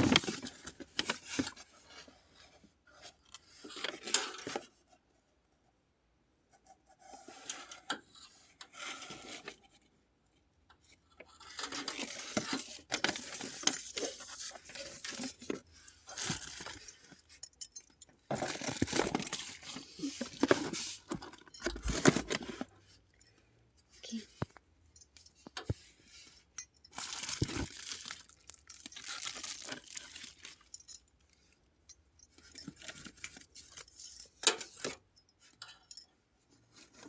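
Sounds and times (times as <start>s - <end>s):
rustling and scraping: 0.0s - 5.0s, 6.5s - 10.0s, 10.8s - 24.6s, 25.2s - 31.0s.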